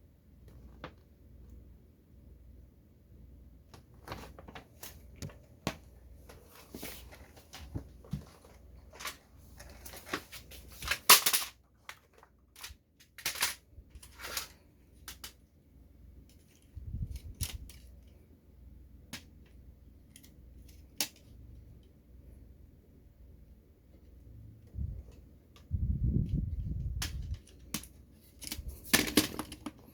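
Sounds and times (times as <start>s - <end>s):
packaging rustling: 6.2s - 14.6s
plastic toy clicks and knocks: 26.7s - 29.8s.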